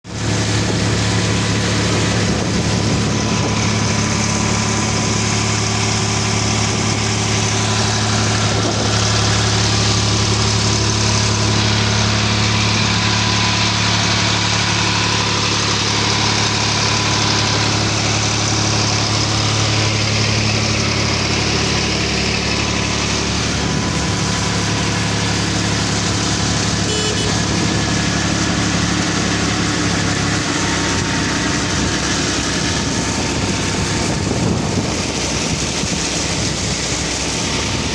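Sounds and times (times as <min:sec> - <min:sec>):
tractor engine running: 0:00.0 - 0:37.9.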